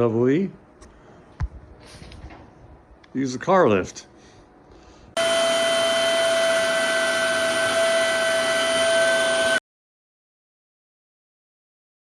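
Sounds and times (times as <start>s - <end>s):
electric hydraulic pump whining: 5.2s - 9.6s.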